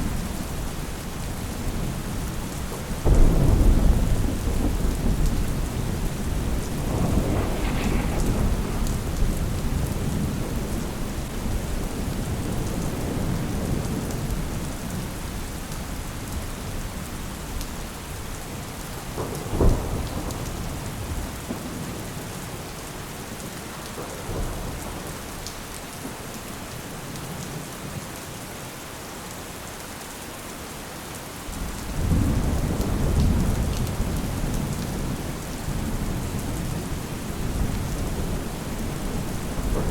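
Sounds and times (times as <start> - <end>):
steady rain: 0.0 - 39.9
thunder rumbling: 2.8 - 14.3, 31.6 - 39.9
thunder crack: 3.0 - 12.4, 35.8 - 39.9.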